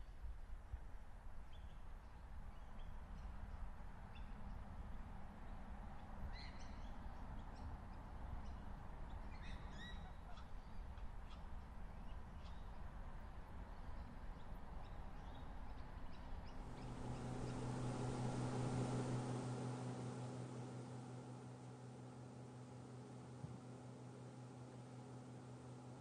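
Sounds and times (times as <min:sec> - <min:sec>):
steady low rumble: 0:10.1 - 0:26.0
birds chirping: 0:13.8 - 0:20.0.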